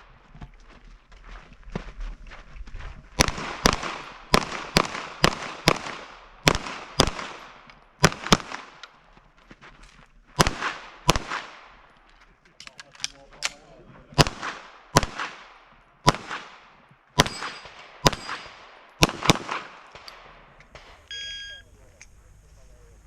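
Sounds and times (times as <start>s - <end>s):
rapid pistol gunfire: 3.2s - 8.8s, 10.4s - 11.8s, 14.2s - 21.0s.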